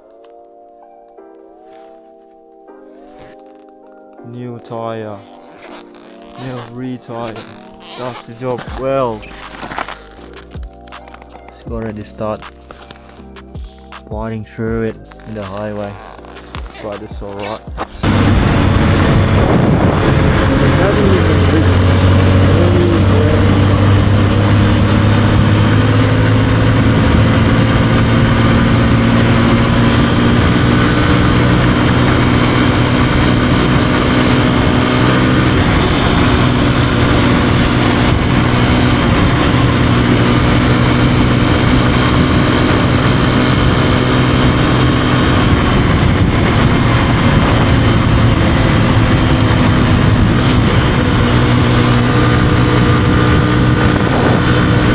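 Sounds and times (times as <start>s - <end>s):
motorbike engine running: 14.7s - 54.9s.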